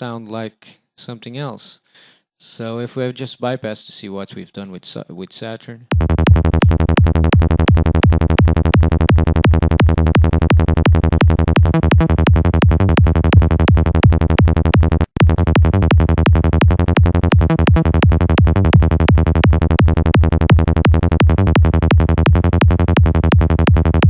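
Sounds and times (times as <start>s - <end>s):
looping synth bass notes: 5.9s - 24.0s.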